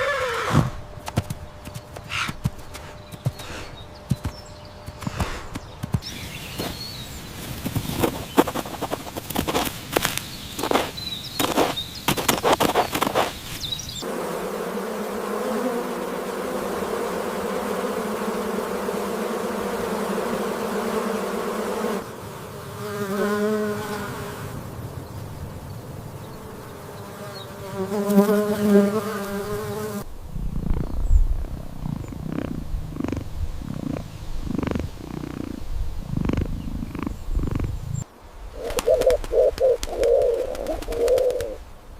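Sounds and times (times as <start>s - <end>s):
bees buzzing: 0.0s - 41.7s
quick crackling clicks: 7.7s - 13.4s.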